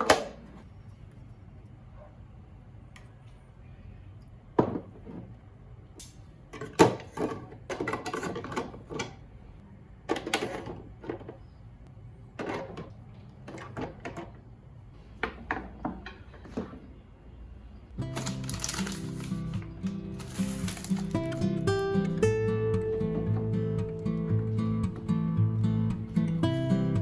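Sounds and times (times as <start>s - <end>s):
low room hum: 0.0s - 27.0s
kitchen items knocking and clattering: 4.6s - 5.4s, 6.5s - 9.2s, 10.0s - 11.4s, 12.3s - 14.4s, 15.2s - 16.9s, 18.1s - 21.6s.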